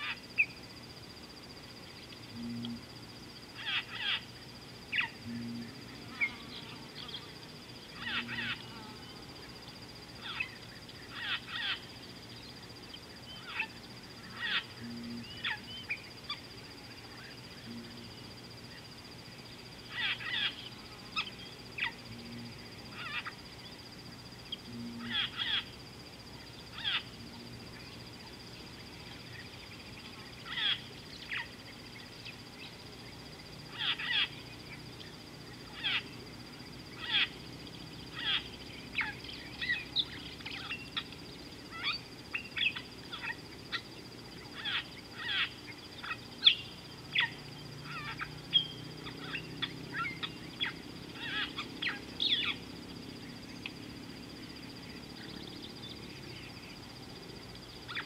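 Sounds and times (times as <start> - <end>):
faint high-pitched whine: 0.0 - 58.0
birds calling: 24.5 - 25.7, 38.1 - 52.6.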